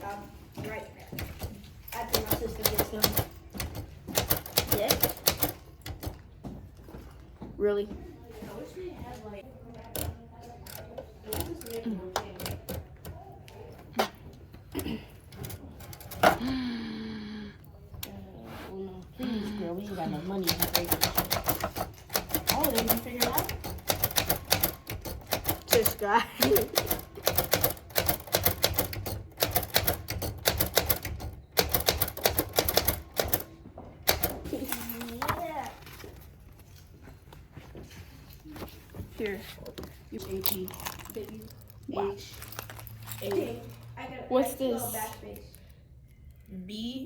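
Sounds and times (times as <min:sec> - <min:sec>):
typewriter keys clacking: 0:02.0 - 0:06.2, 0:20.4 - 0:33.5, 0:34.1 - 0:35.4.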